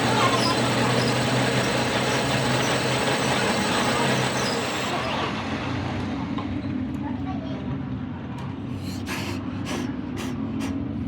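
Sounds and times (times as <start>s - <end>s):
mechanical drone with low hum: 0.0s - 7.1s.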